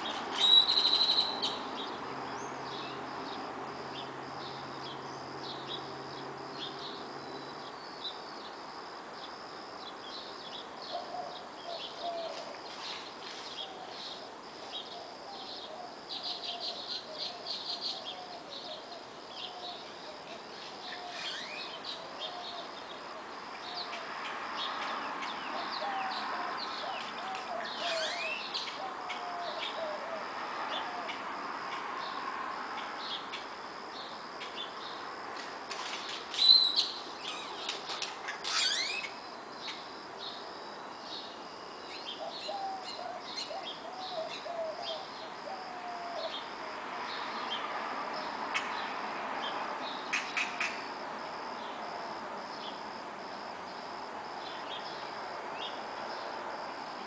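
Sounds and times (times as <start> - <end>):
passing vehicle hum: 0.0 - 9.1, 21.6 - 39.2, 45.0 - 57.0
crickets trilling: 0.0 - 57.0.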